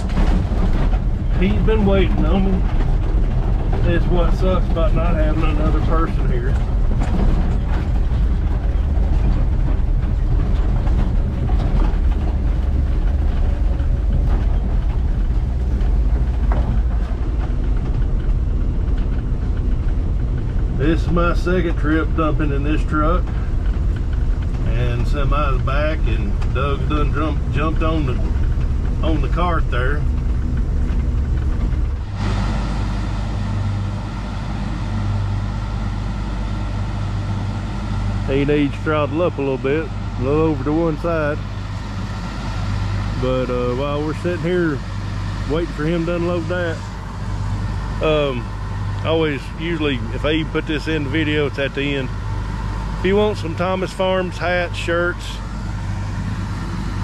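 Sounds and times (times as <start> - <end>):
rattling: 0.0 - 32.4
combine engine rumble: 0.0 - 57.0.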